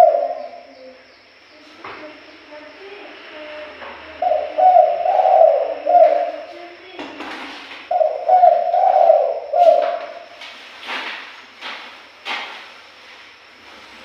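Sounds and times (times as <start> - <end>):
dove cooing: 0.0 - 1.0, 1.6 - 7.0, 7.8 - 10.4.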